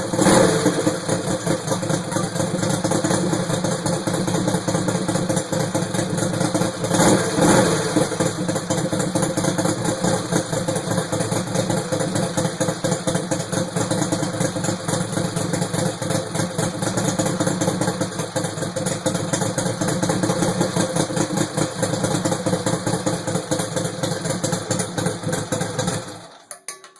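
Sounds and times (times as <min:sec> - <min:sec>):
mower engine running: 0:00.0 - 0:07.0.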